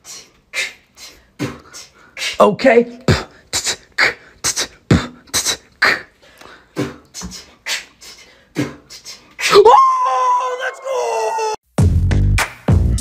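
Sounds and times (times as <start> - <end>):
beatboxing: 0.0 - 9.7.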